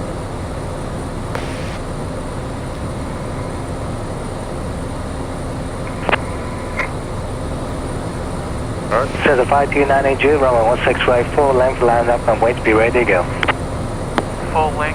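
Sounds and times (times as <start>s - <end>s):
plane engine and propeller: 0.0s - 14.9s.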